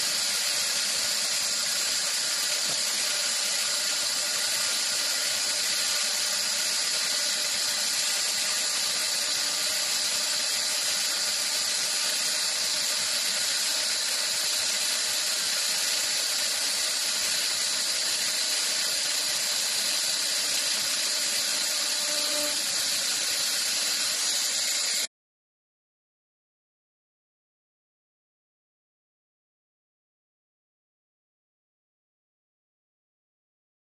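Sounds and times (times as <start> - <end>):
wood lathe running: 0.0 - 25.1.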